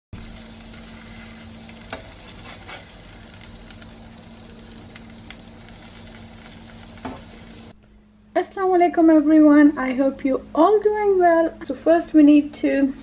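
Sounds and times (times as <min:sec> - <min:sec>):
tortilla sizzling in a pan: 0:00.2 - 0:07.8.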